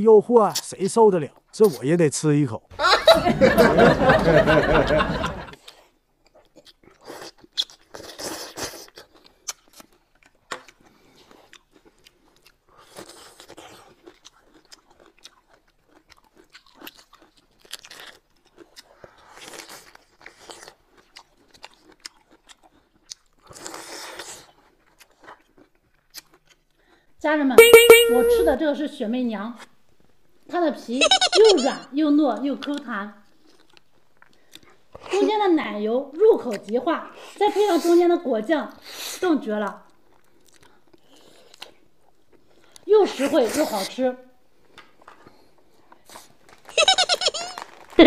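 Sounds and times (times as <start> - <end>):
chewing: 5.5 - 27.1, 32.6 - 35.2, 36.4 - 37.9, 39.8 - 42.9, 44.6 - 48.0.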